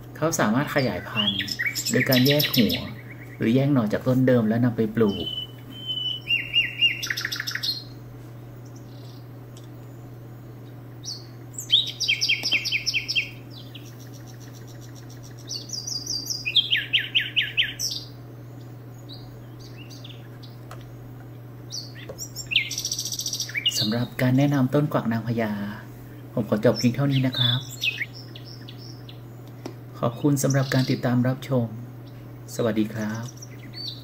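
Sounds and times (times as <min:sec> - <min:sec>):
low hum: 0:00.0 - 0:34.0
songbird chirping: 0:00.2 - 0:34.0.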